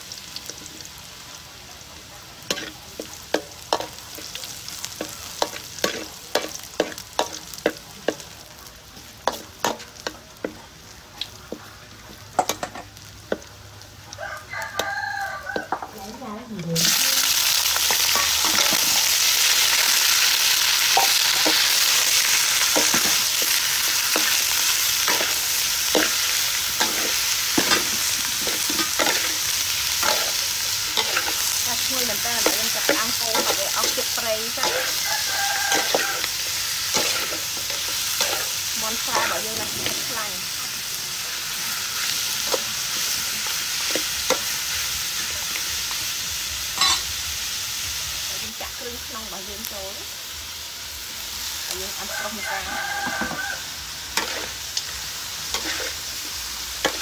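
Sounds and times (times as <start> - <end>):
chicken sizzling in wok: 0.0 - 57.0
metal ladle scraping pan: 46.8 - 47.1, 54.2 - 54.6, 55.5 - 56.0.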